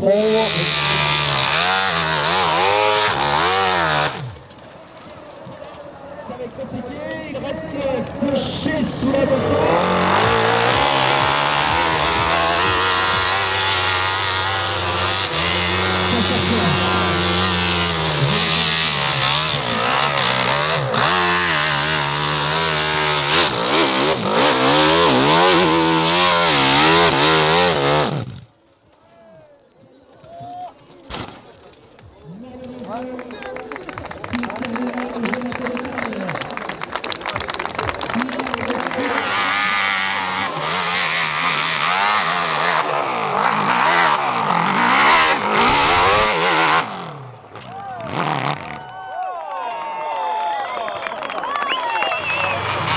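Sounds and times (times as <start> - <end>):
dirt bike engine revving: 0.0 - 5.2, 8.4 - 28.6, 38.0 - 48.9, 52.2 - 52.9.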